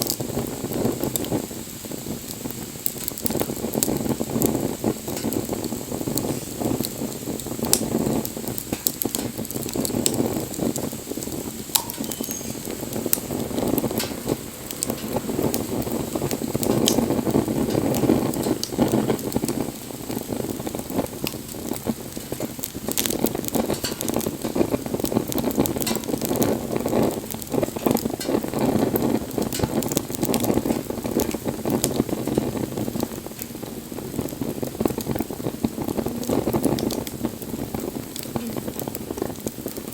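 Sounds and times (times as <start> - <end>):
wood fire crackling: 0.0 - 39.9
sharp pops: 8.6 - 20.2.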